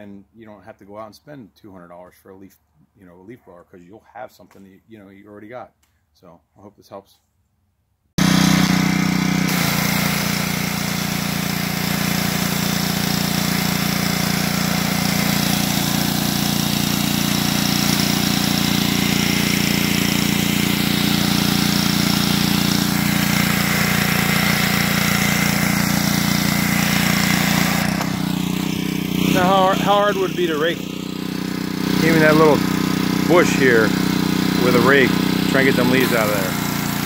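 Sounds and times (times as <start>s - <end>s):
high-pressure water spray hissing: 8.2s - 37.0s
pressure washer engine running: 8.2s - 37.0s.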